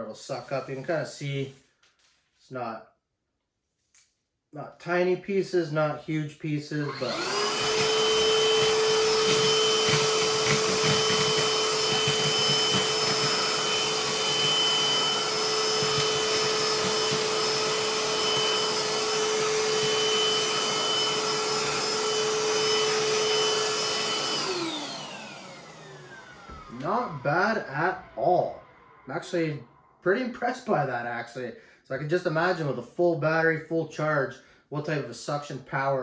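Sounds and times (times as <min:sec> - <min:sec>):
handheld vacuum whining: 0:06.6 - 0:30.9.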